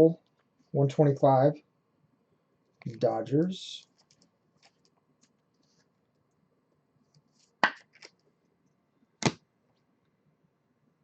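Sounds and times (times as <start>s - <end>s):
trading cards snapping: 7.6s - 8.2s.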